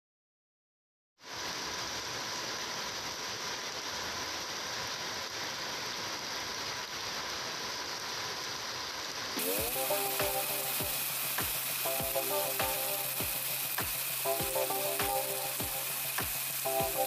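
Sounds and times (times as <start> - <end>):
heavy rain on concrete and gravel: 1.2 - 17.0
multi-tone pitched sound: 9.4 - 17.0.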